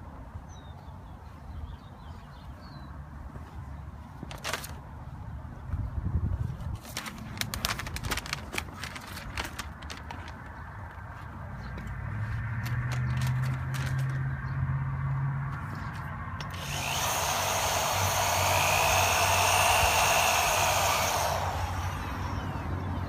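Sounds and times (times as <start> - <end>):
power drill buffing: 16.4 - 23.0.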